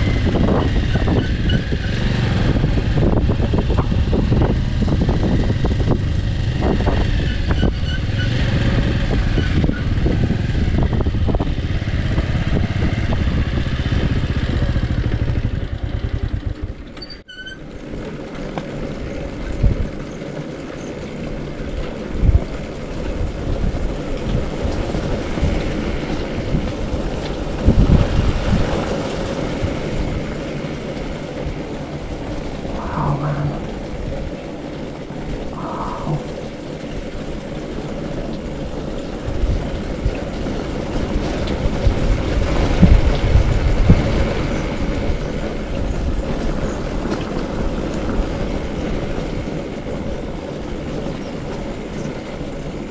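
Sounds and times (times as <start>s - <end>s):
motorcycle running: 0.0s - 17.0s.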